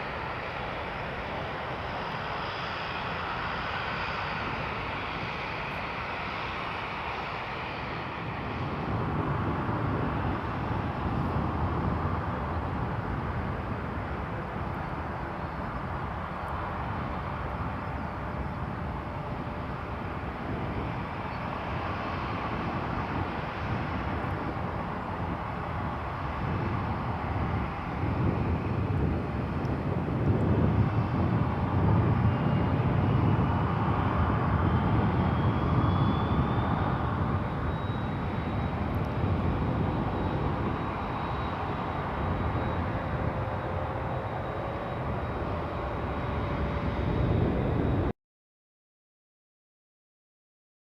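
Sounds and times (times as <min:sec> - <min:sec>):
jet engines rushing: 0:00.0 - 0:48.1.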